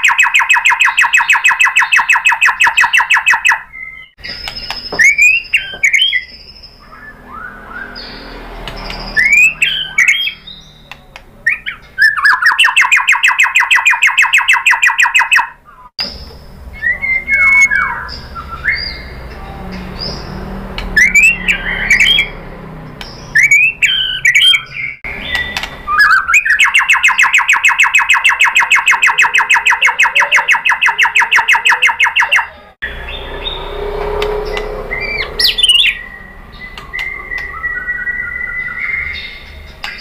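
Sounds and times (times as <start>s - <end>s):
songbird whistling and trilling: 0.0s - 19.2s, 20.0s - 22.4s, 23.0s - 33.8s, 34.4s - 40.0s.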